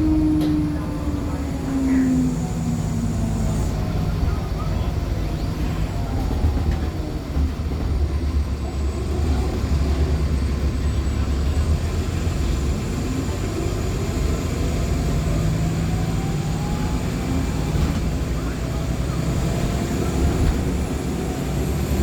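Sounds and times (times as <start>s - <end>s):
faint whines gliding in pitch: 0.0s - 7.5s
bus engine drone: 0.0s - 22.0s.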